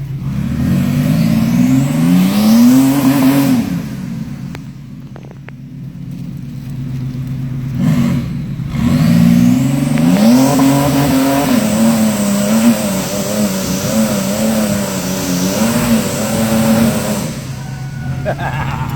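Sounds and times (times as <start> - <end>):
engine revving at rev limiter: 0.0 - 4.8, 7.0 - 18.9.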